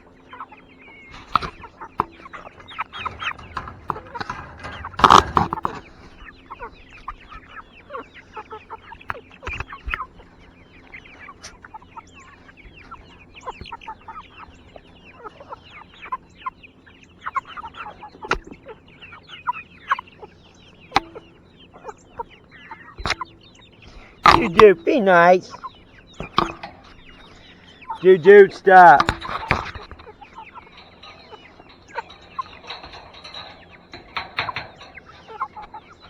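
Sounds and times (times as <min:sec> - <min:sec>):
chickens clucking: 0:00.0 - 0:36.0
sharp knocks: 0:01.1 - 0:06.3, 0:24.2 - 0:25.4, 0:26.2 - 0:36.0.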